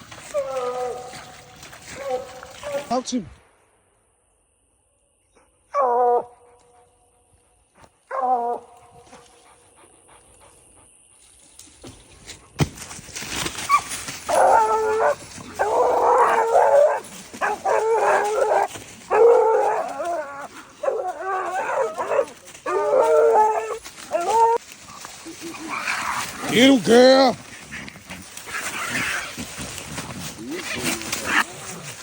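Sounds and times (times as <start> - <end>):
hounds baying: 0.0 - 3.0, 5.3 - 10.9, 13.6 - 32.0
rustling: 11.4 - 32.0.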